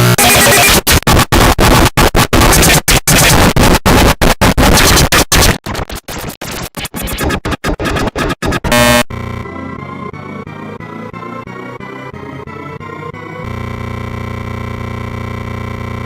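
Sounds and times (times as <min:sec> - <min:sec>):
distorted electronic audio stuttering: 0:00.0 - 0:09.5, 0:13.4 - 0:16.0
scratch-like noises: 0:02.4 - 0:09.0.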